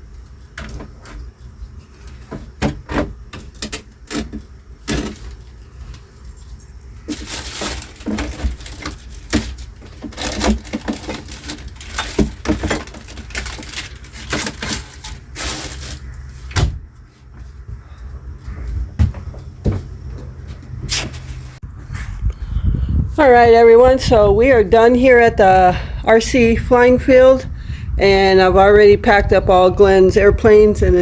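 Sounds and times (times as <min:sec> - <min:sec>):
rustling: 0:05.0 - 0:17.6
household items clinking and knocking: 0:06.4 - 0:16.0.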